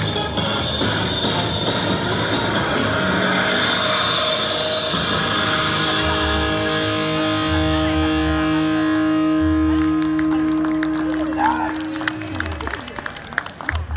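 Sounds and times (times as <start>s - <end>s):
low pulsing bass notes: 0.0s - 13.2s
distorted electric guitar chord: 2.8s - 12.4s.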